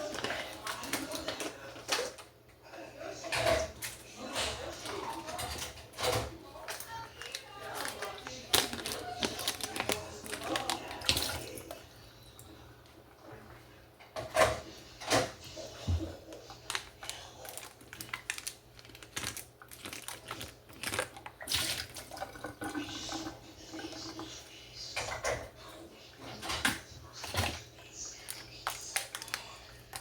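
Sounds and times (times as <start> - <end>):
dishes and utensils clinking: 3.2 - 11.8.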